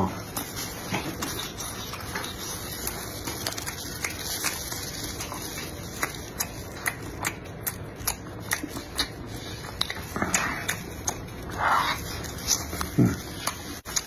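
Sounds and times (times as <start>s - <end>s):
close-miked chewing: 0.0s - 14.0s
wet mouth clicks: 5.6s - 14.0s.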